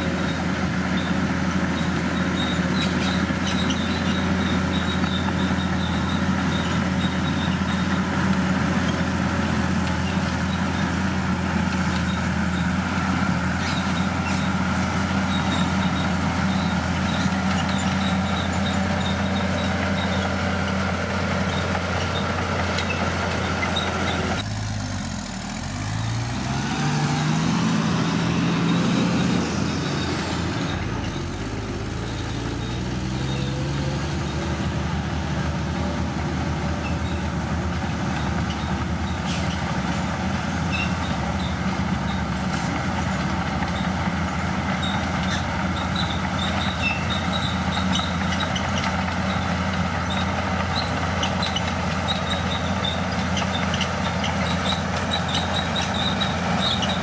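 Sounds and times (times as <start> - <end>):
bulldozer diesel engine: 0.0 - 57.0
short high squeaks: 13.5 - 24.5, 38.0 - 44.0, 44.8 - 57.0.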